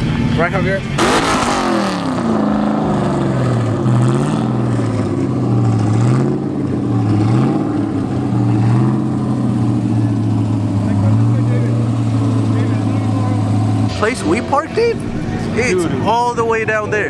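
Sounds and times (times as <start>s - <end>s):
car engine exhaust drone: 0.0s - 17.0s.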